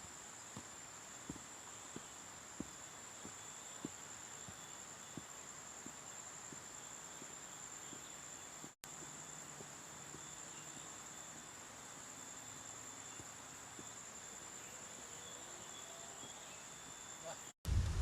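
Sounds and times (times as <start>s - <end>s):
lower insect trill: 0.0s - 17.6s.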